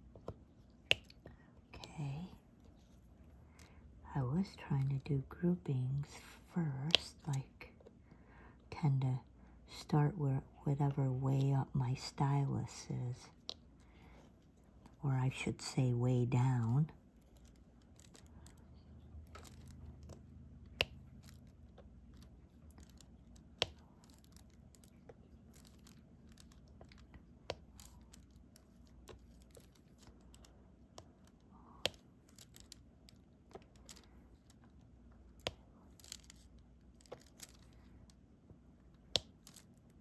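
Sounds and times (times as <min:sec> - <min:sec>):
stylus clicking and tapping: 0:00.1 - 0:01.5.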